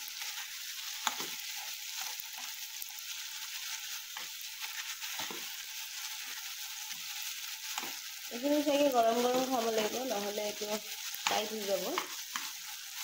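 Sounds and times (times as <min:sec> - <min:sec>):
food sizzling in a pan: 0:00.0 - 0:13.0
spatula scraping the pan: 0:00.1 - 0:08.3.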